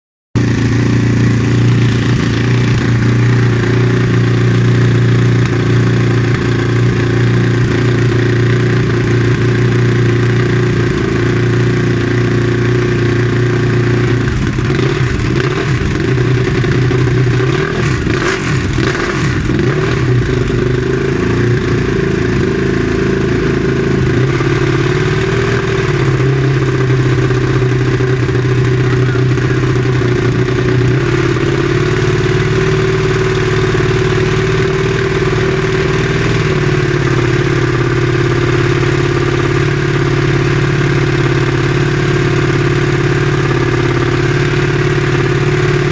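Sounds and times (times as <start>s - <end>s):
motorcycle engine idling and revving: 0.4s - 45.9s
sharp exhaust cracks: 24.0s - 31.9s.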